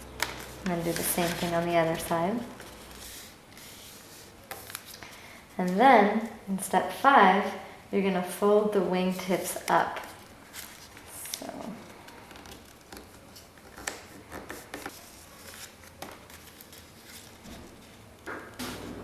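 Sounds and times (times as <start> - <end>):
paper crinkling and clicking: 0.2 - 2.0, 4.4 - 5.1, 10.0 - 18.2.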